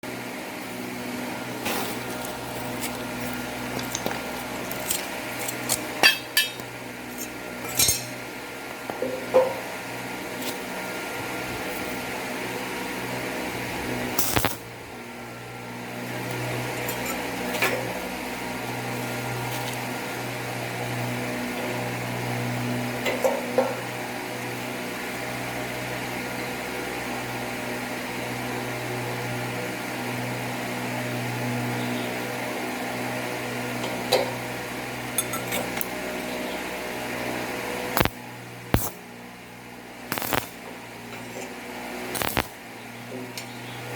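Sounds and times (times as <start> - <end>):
bench drill motor humming: 0.6 - 7.6
sharp clicks and knocks: 38.8 - 39.0, 40.1 - 40.5.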